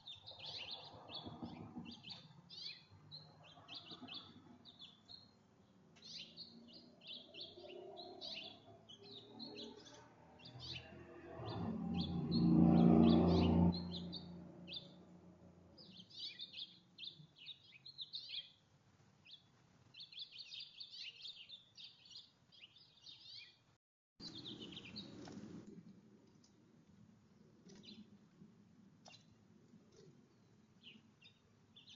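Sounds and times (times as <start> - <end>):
songbirds chirping: 0.0 - 25.6, 27.4 - 28.4, 29.0 - 31.9
low hum: 10.0 - 15.9.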